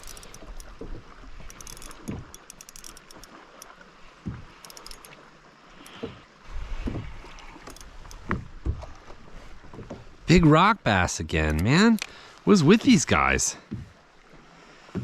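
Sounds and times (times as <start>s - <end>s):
small ticks: 0.0s - 3.8s, 4.6s - 6.2s, 7.3s - 8.4s
water splashing and dripping: 0.0s - 14.4s.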